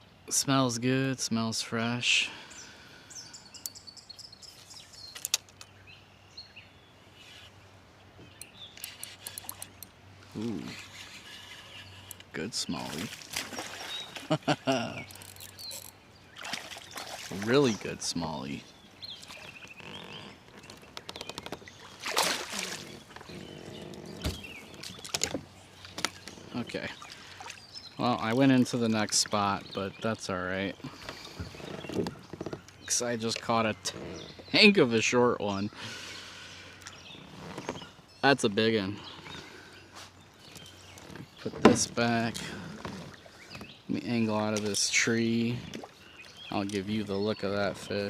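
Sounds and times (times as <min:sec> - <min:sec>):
birds chirping: 0:00.0 - 0:48.0
small clicks and knocks: 0:05.1 - 0:05.7, 0:08.4 - 0:09.9
water splashing: 0:12.5 - 0:18.6, 0:21.5 - 0:29.8
knocks against hull: 0:41.5 - 0:42.0.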